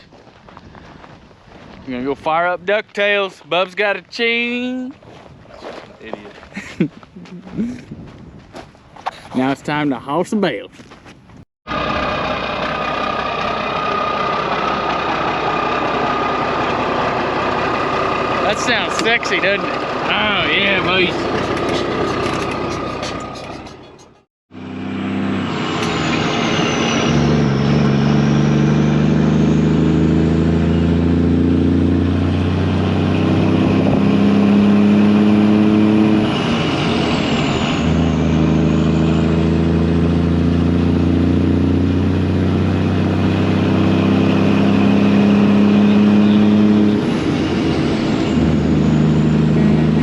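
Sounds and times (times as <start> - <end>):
truck diesel engine pulling: 11.7 - 50.0.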